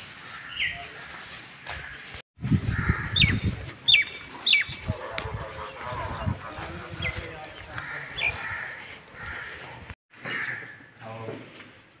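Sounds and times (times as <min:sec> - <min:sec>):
birds chirping: 0:02.7 - 0:10.9.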